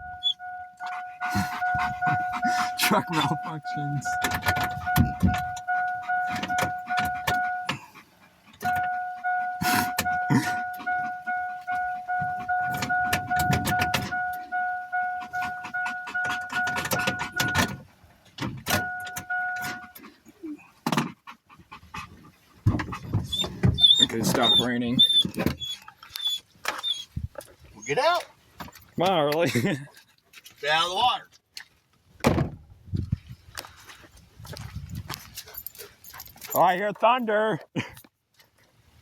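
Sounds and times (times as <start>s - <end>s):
truck warning chime dinging: 0.0s - 7.9s, 8.5s - 17.9s, 18.6s - 20.0s.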